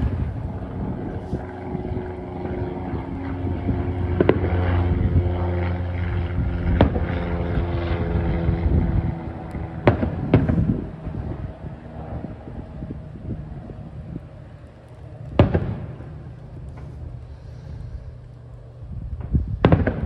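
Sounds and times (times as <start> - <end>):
low engine-like hum: 0.0 - 20.0
distant firework shells bursting: 3.0 - 4.8, 9.8 - 11.1, 14.6 - 18.3, 19.2 - 20.0.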